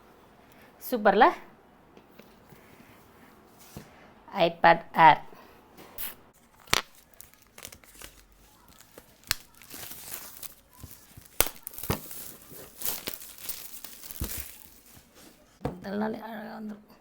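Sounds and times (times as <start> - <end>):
plastic wrapping crinkling and tearing: 6.4 - 15.6.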